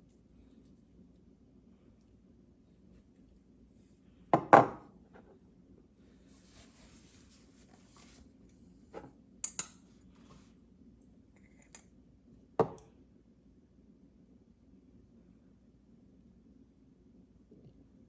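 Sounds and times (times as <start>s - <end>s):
soft rustling: 6.0s - 8.9s.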